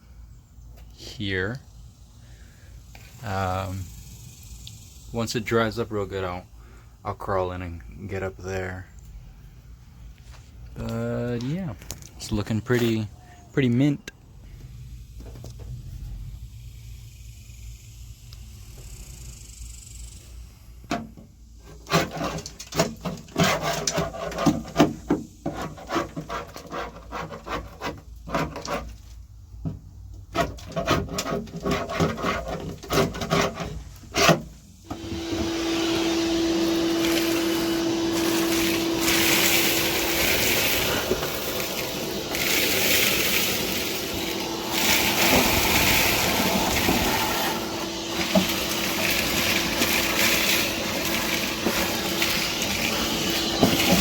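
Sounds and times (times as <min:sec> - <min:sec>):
hand tool scraping metal: 0:21.6 - 0:29.2, 0:30.3 - 0:54.0
machine humming: 0:34.8 - 0:54.0.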